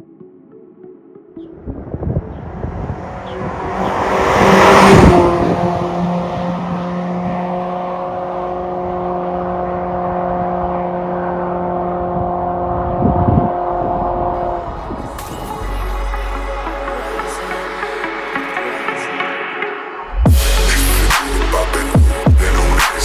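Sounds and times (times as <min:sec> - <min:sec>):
car engine exhaust drone: 0:02.2 - 0:15.6.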